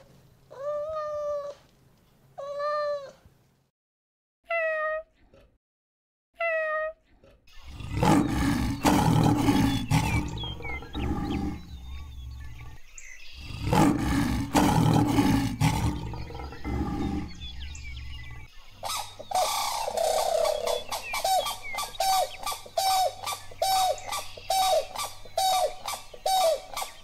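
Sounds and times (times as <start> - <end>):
cat meow: 4.5 - 5.1, 6.4 - 7.0
large animal roaring: 7.6 - 12.8, 13.4 - 18.5.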